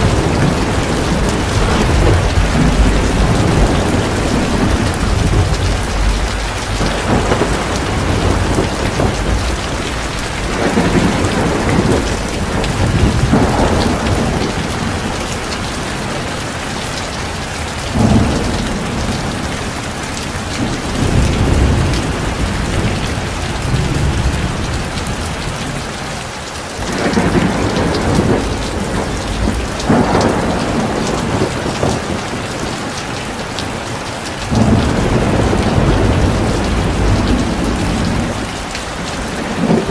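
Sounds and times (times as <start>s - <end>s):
low rolls of thunder: 0.0s - 25.8s, 26.8s - 33.8s, 34.4s - 39.9s
heavy rain falling: 0.0s - 39.9s.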